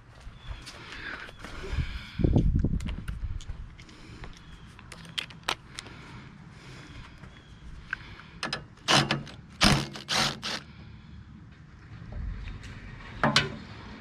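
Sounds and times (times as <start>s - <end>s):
loud rasping bursts: 8.8s - 10.8s.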